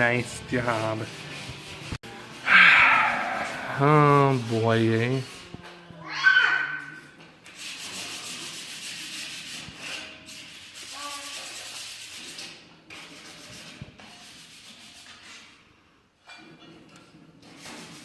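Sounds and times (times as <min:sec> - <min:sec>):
rough rubbing and scraping: 0:00.2 - 0:05.7.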